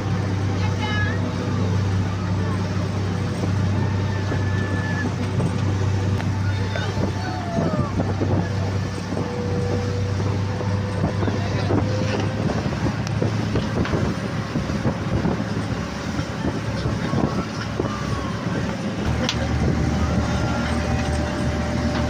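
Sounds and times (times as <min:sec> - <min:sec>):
motorboat engine running: 0:00.0 - 0:22.0
wind noise on microphone: 0:00.0 - 0:22.0.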